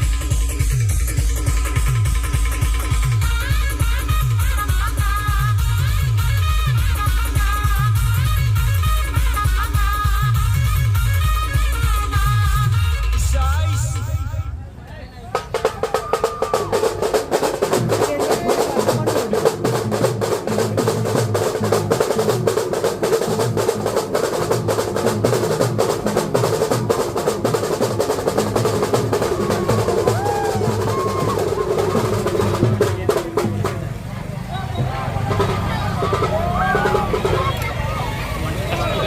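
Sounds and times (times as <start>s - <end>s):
fast dense drumming: 0.0s - 10.9s, 15.3s - 34.1s, 34.8s - 37.6s
live band playing dance music: 0.0s - 14.6s.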